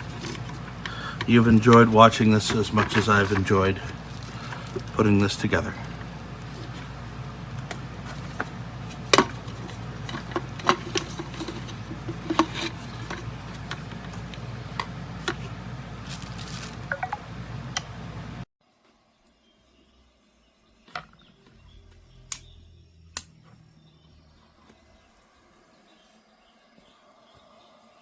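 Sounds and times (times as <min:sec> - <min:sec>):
low steady hum: 0:00.0 - 0:18.5.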